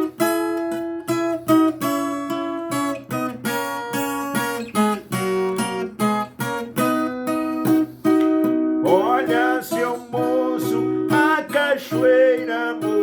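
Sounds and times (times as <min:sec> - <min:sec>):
plucked string melody: 0:00.0 - 0:13.0
person singing: 0:08.8 - 0:13.0.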